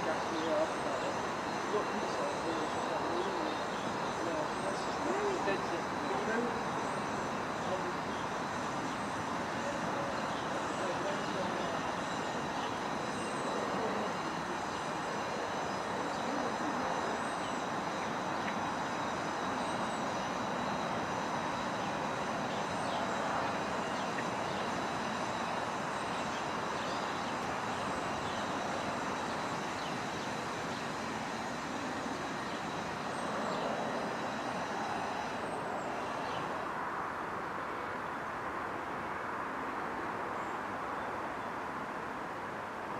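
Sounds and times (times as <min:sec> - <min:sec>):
faint high whining tones: 0:00.0 - 0:42.9.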